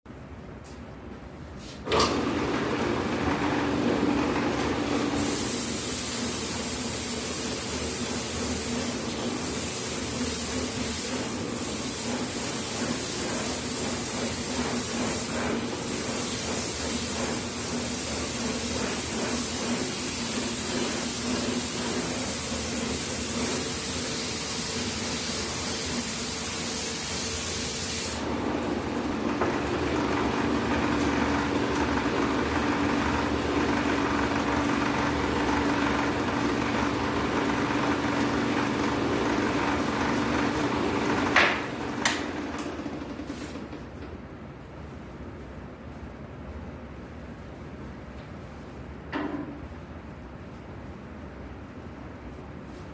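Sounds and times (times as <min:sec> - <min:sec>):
sanding machine humming: 0:01.9 - 0:43.8.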